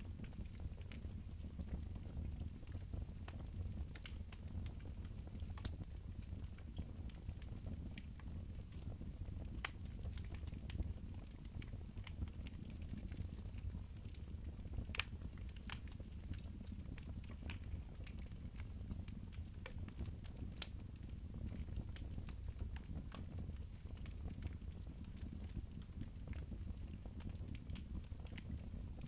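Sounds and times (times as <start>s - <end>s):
wood fire crackling and popping: 0.0s - 29.0s.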